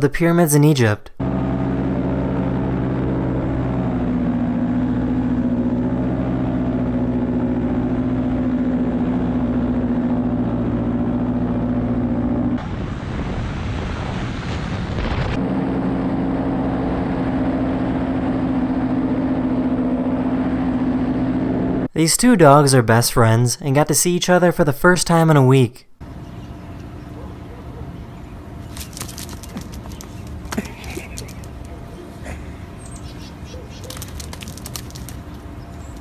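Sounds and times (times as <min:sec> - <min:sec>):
paramotor engine droning: 0:01.2 - 0:13.2, 0:15.3 - 0:21.9, 0:26.0 - 0:36.0.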